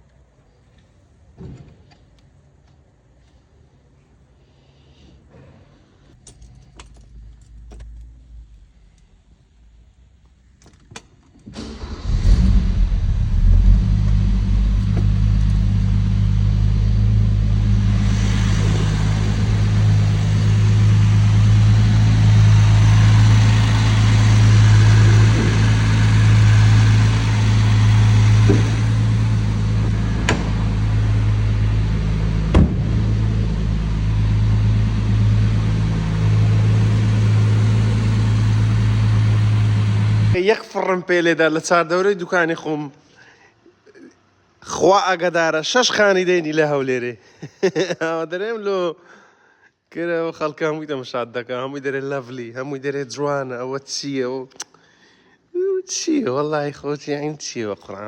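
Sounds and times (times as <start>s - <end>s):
car engine starting and idling: 6.1s - 40.4s
keys jingling: 6.2s - 8.0s.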